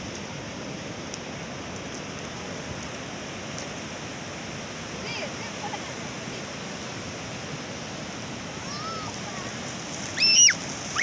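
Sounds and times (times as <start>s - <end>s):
sea surf washing on shore: 0.0s - 11.0s
child shrieking: 8.7s - 9.5s, 10.2s - 11.0s
faint high cry: 8.7s - 9.5s, 10.2s - 11.0s.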